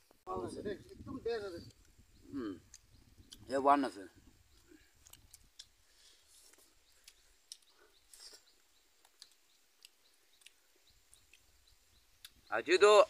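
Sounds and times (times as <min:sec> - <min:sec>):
mouth clicks of chewing: 0:04.5 - 0:05.8, 0:06.4 - 0:11.5, 0:12.2 - 0:12.4.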